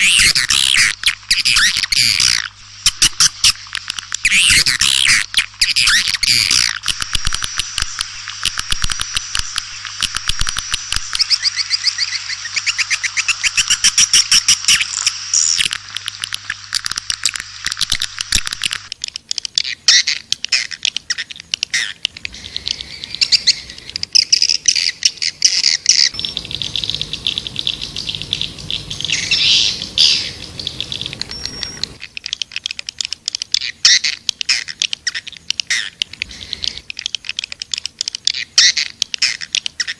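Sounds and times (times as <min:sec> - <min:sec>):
swiftlets twittering: 0:00.0 - 0:19.1, 0:21.8 - 0:32.5
faint low hum: 0:26.1 - 0:32.0.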